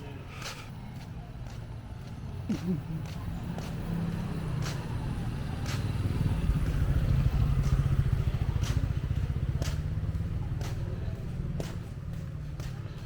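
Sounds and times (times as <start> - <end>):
light footsteps: 0.0 - 13.0
motorbike engine passing: 2.5 - 12.8.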